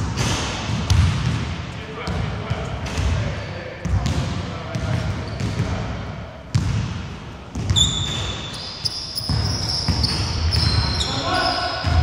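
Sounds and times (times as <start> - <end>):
basketball bouncing on wooden court: 0.1 - 1.5, 3.8 - 5.8, 6.5 - 11.1
sneakers squeaking on floor: 3.8 - 5.8, 7.5 - 12.0.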